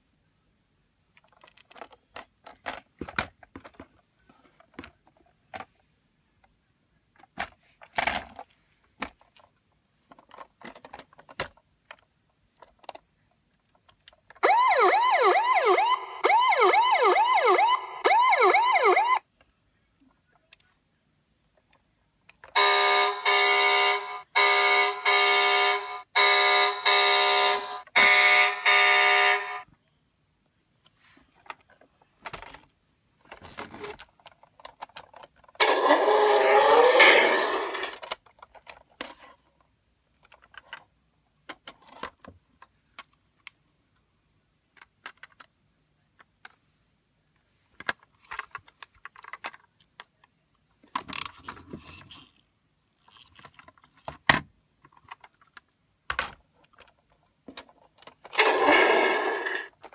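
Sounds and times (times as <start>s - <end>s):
light clicks of toy handling: 1.1s - 14.4s, 19.4s - 22.6s, 30.8s - 44.0s, 44.7s - 59.9s
toy alarm tone pulsing: 14.4s - 19.2s, 22.6s - 29.6s, 35.6s - 37.9s, 58.4s - 59.7s
toy wavering pitch sound: 35.6s - 37.9s.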